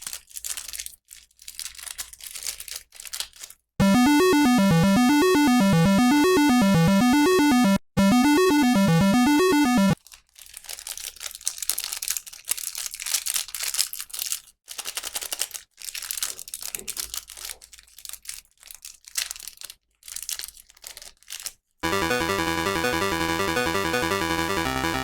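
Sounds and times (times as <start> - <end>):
plastic packaging crinkling and tearing: 0.0 - 3.6, 10.0 - 21.6
bouncy electronic game music: 3.8 - 10.0, 21.8 - 25.0.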